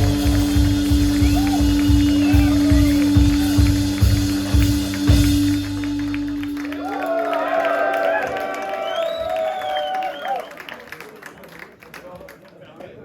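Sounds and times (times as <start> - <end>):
drum hits: 0.0 - 6.8
live band held note: 0.0 - 8.8.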